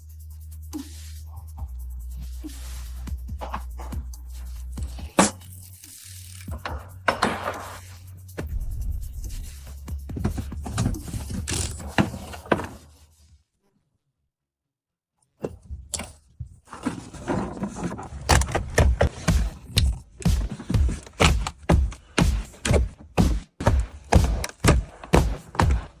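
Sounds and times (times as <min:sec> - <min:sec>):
steady low hum: 0:08.5 - 0:10.2.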